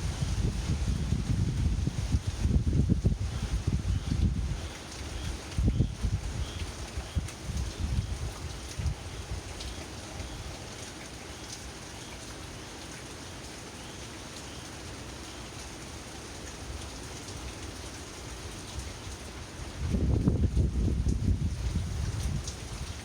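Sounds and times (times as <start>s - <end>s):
wind rumbling on microphone: 0.0s - 10.6s, 19.6s - 23.0s
heavy rain hissing: 0.0s - 23.0s.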